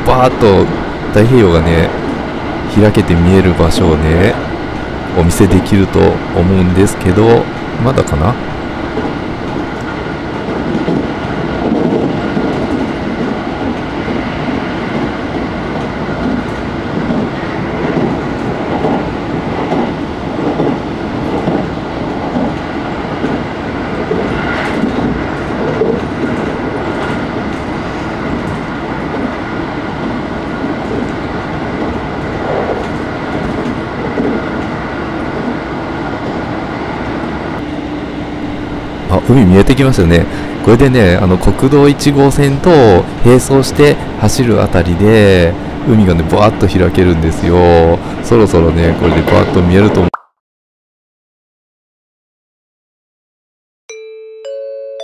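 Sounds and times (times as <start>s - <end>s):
train wheels rumbling on rail: 0.0s - 50.1s.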